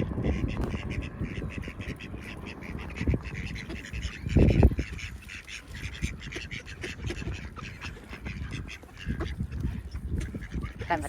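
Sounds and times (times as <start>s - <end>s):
loud low rumble: 0.0s - 5.0s
ducks quacking: 0.0s - 11.0s.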